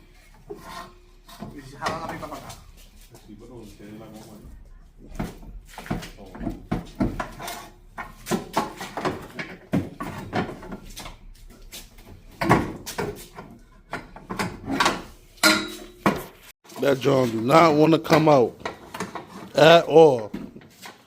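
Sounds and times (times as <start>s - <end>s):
exhaust pipe knocking and clanking: 12.0s - 16.3s.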